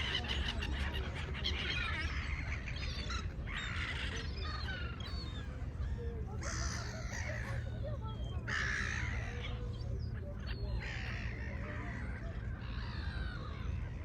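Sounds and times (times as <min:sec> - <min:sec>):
seagulls calling: 0:00.0 - 0:14.0.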